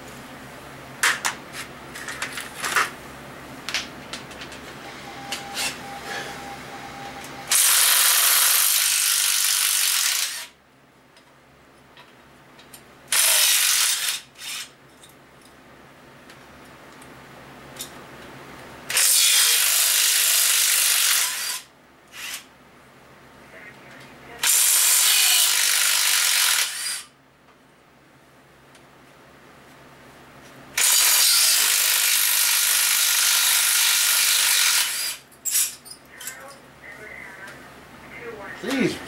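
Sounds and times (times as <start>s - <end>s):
power tool spinning bolts: 7.5s - 10.5s, 13.1s - 14.7s, 18.9s - 21.6s, 24.4s - 27.1s, 30.8s - 35.7s.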